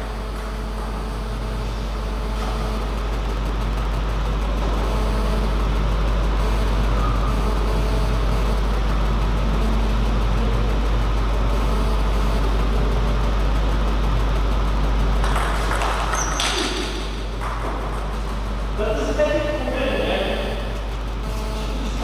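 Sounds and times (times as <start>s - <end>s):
low hum and rumble: 0.0s - 22.0s.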